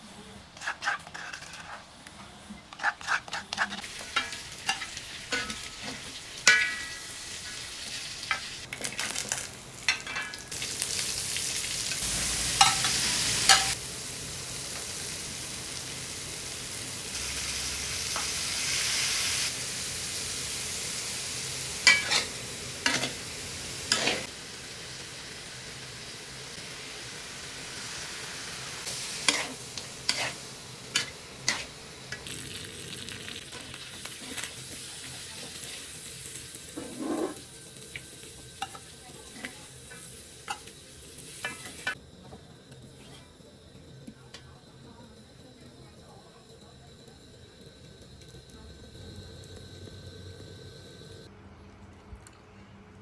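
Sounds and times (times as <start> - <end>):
utensil scraping a pan: 0.5 - 7.6, 28.9 - 31.7, 36.8 - 37.5
chicken sizzling in a pan: 2.8 - 51.3.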